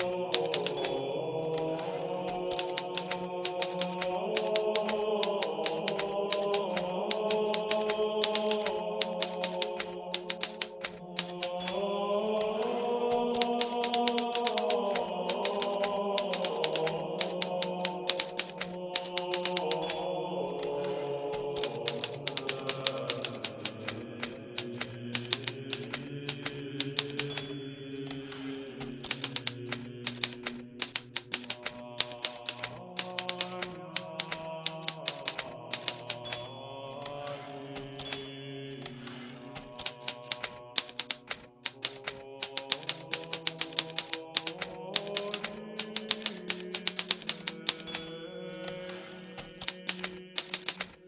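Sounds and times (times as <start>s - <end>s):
manual typewriter typing: 0.0s - 51.0s.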